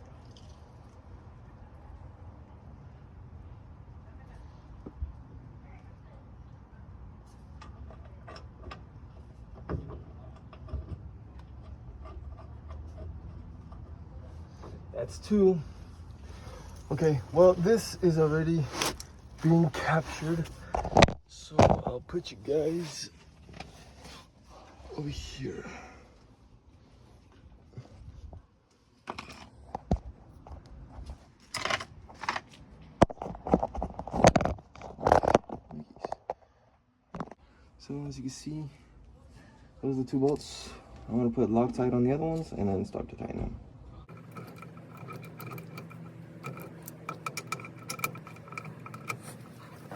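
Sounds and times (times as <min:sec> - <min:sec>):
steady low hum: 0:43.4 - 0:49.9
metal bolt clicks and knocks: 0:44.1 - 0:49.9.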